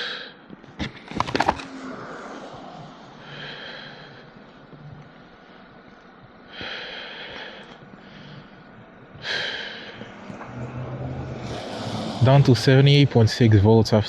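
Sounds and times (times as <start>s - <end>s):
person breathing: 0.0s - 0.4s, 2.3s - 10.3s.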